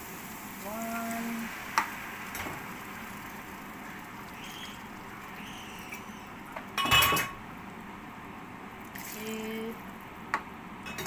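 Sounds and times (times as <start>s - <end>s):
water pouring into a pot: 0.0s - 6.7s.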